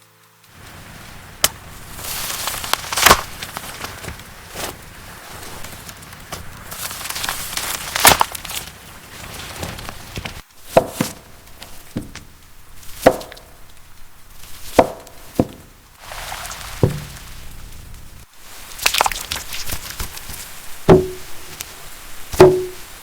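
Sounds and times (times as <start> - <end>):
knife chopping on cutting board: 22.4 - 22.8.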